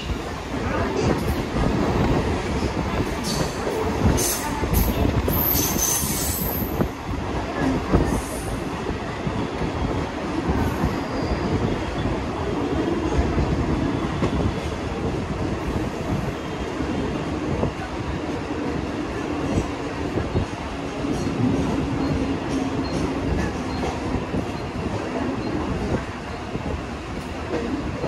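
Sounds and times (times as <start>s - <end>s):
train wheels rumbling: 0.0s - 28.0s.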